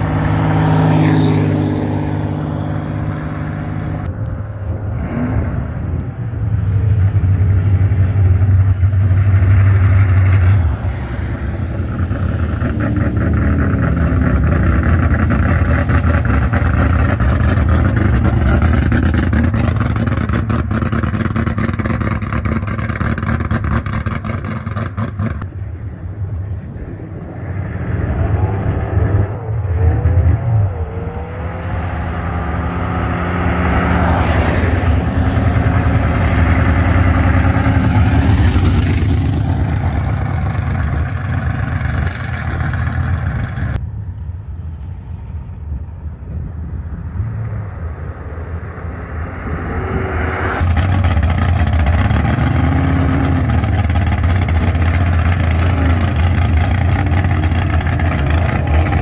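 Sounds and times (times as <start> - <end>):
drag race car engines: 0.0 - 59.0
engine throttle blips: 47.8 - 59.0.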